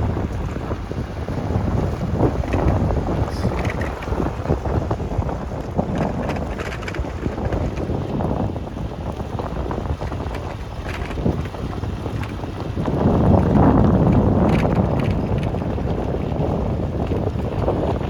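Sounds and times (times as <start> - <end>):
wind buffeting microphone: 0.0 - 18.0
faint crackles: 2.2 - 4.7, 5.6 - 7.9.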